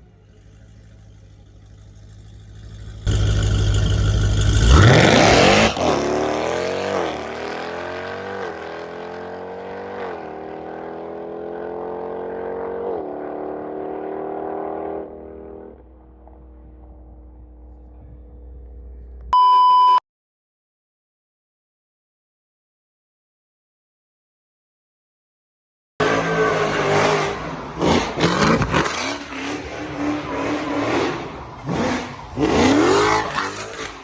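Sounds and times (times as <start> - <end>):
car accelerating through gears: 3.1 - 15.9, 26.0 - 34.0
short electronic beep: 19.3 - 20.0.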